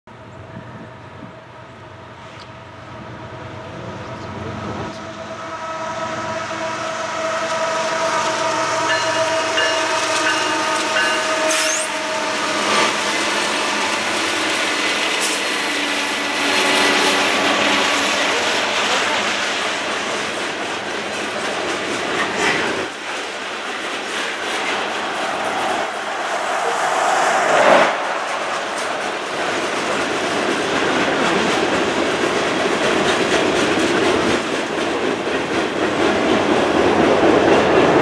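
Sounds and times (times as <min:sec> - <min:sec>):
locomotive engines passing: 0:07.8 - 0:38.0
steady whining tones: 0:22.4 - 0:30.8.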